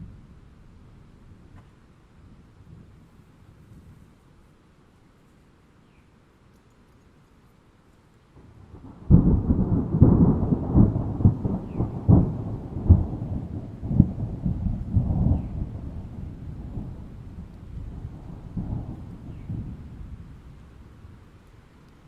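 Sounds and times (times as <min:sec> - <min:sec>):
thunder crack and rumble: 0:08.4 - 0:21.3.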